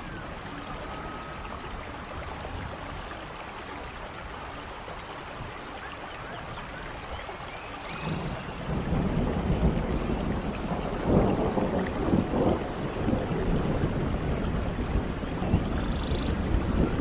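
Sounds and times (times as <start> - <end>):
rain falling: 0.0 - 17.0
thunder rumbling: 7.9 - 17.0.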